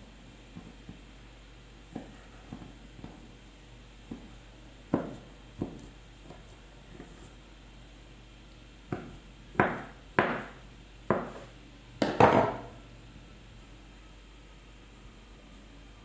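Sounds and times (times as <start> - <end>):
cookware knocking: 11.1 - 12.7.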